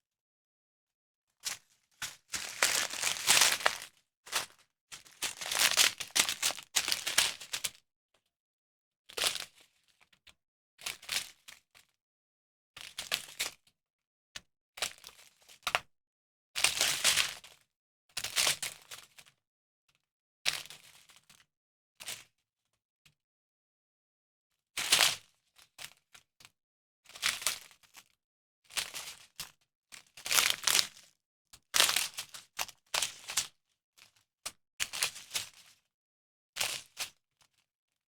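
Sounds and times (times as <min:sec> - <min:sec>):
plastic packaging crinkling: 0:02.3 - 0:04.5, 0:05.2 - 0:06.7, 0:30.4 - 0:30.8.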